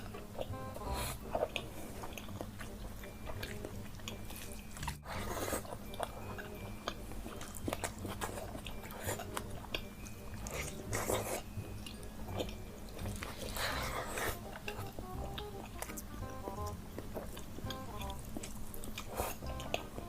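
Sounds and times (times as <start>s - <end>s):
person chewing crunchy food: 0.0s - 20.0s.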